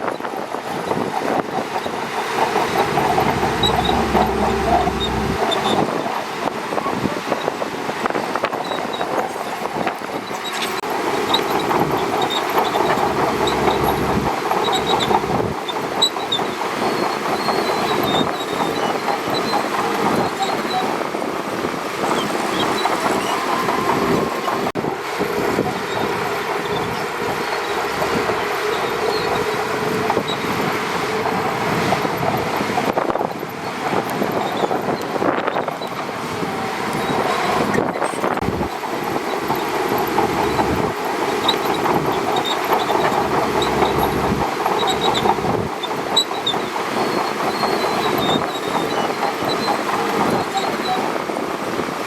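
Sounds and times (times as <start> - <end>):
steel tracks clanking and squealing: 0.0 - 52.0
diesel engine running: 1.3 - 6.4, 10.8 - 32.2, 36.0 - 52.0.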